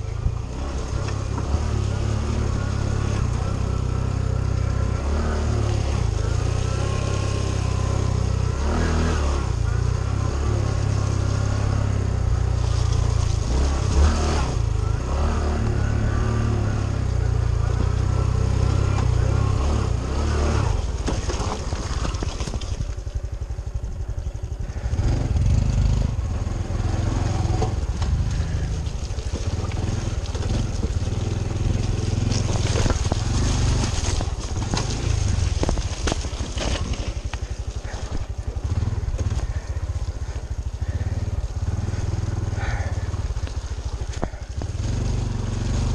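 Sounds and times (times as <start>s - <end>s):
motorcycle engine running: 0.0s - 45.9s
knocks over rough ground: 20.8s - 23.1s, 27.5s - 39.9s.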